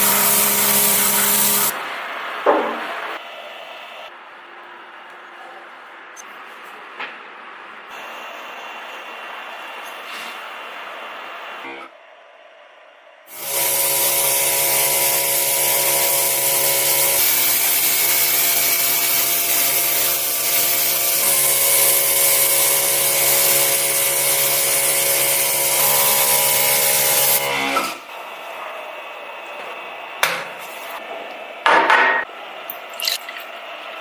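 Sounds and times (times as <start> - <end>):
electric motor humming: 0.0 - 1.7.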